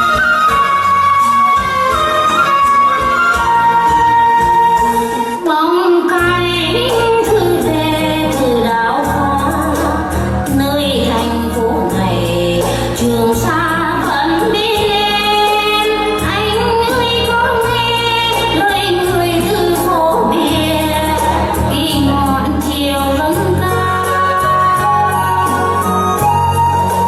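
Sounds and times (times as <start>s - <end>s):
instrumental backing with bass: 0.0s - 27.0s
woman singing: 4.7s - 26.0s.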